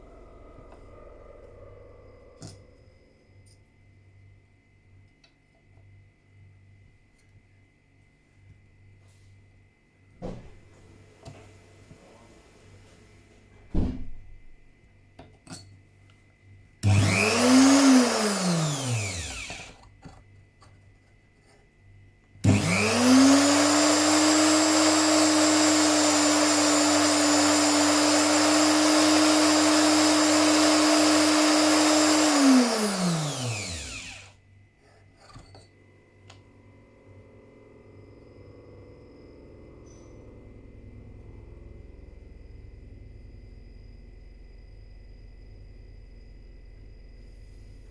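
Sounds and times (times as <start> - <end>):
grinder motor whine: 16.8 - 19.9, 22.4 - 34.4.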